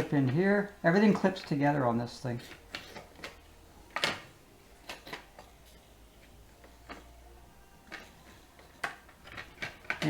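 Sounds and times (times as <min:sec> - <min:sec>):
plastic parts clicking: 0:07.8 - 0:10.0.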